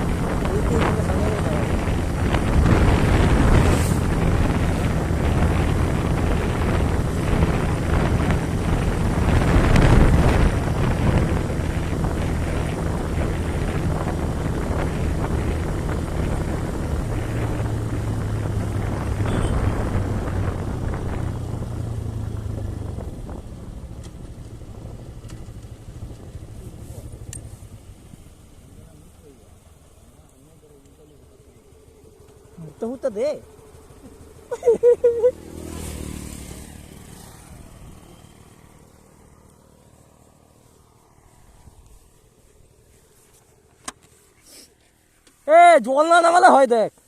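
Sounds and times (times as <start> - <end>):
wind noise on microphone: 0.0 - 28.3
small engine running: 0.0 - 45.1.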